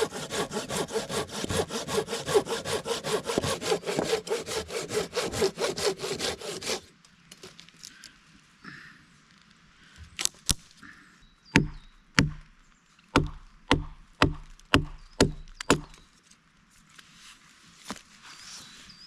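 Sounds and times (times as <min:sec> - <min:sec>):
wood chopping blows: 0:11.6 - 0:12.5, 0:13.1 - 0:16.0.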